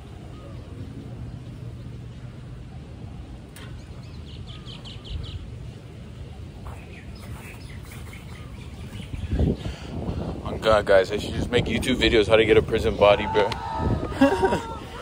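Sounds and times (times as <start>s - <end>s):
bird chirping: 3.6s - 9.7s.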